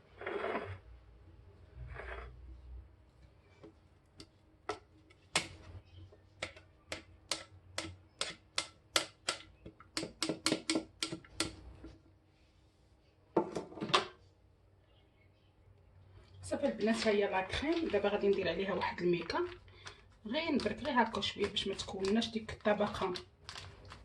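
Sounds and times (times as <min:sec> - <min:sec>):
utensil knocking against pot: 0:06.4 - 0:11.6.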